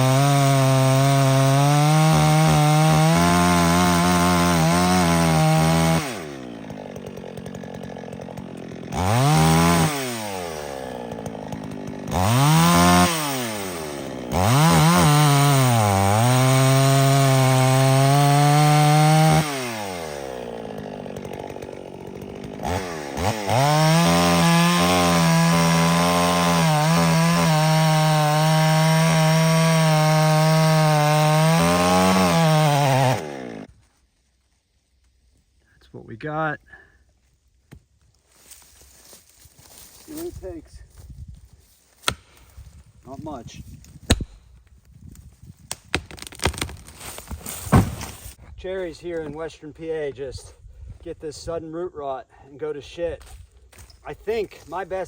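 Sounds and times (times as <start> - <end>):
chainsaw revving and cutting wood: 0.0 - 33.7, 42.0 - 42.4, 45.8 - 48.4, 53.8 - 55.0.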